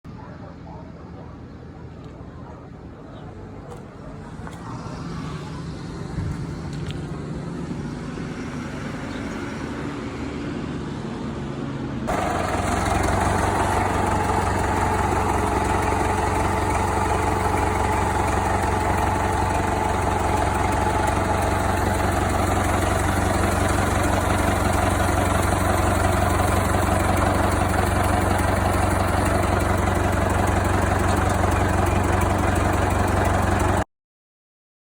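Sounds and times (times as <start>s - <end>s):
old tractor engine running: 12.1s - 33.8s.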